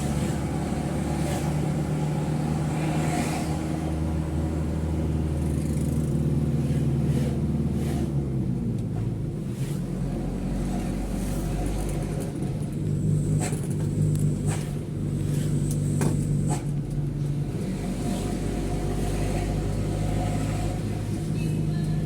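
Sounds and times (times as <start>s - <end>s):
truck diesel engine running: 0.0s - 9.4s, 10.0s - 22.0s.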